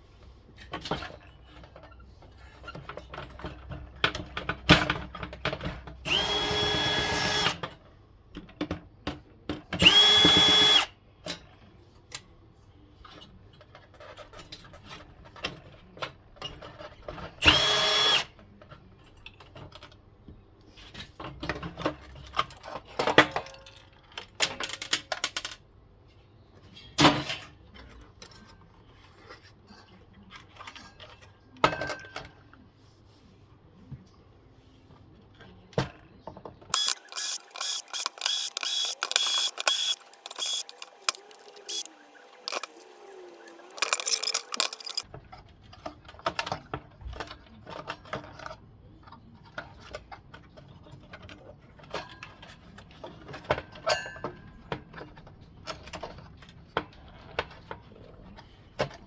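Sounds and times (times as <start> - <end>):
power drill motor whine: 6.1 - 7.6, 9.8 - 10.9, 17.4 - 18.3, 36.8 - 45.0
metal parts clinking: 36.8 - 45.0.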